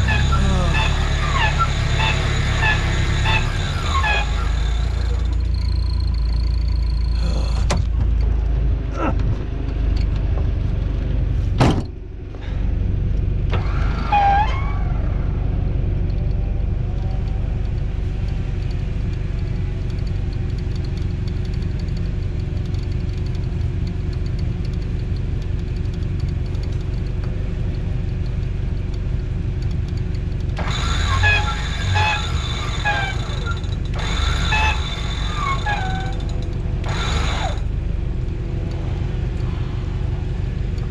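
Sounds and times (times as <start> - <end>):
squeaking and creaking: 0.0 - 8.0, 13.5 - 15.5, 29.4 - 40.1
truck engine running: 0.0 - 40.9.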